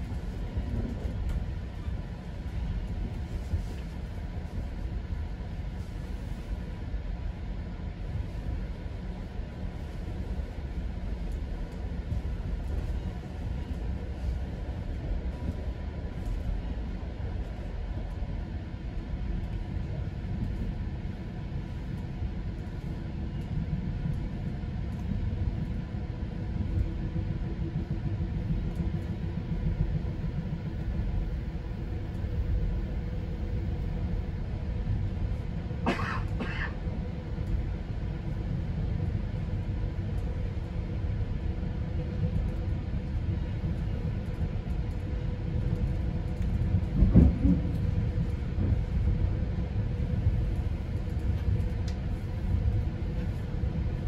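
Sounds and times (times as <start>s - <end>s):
train coach rumbling: 0.0s - 54.0s.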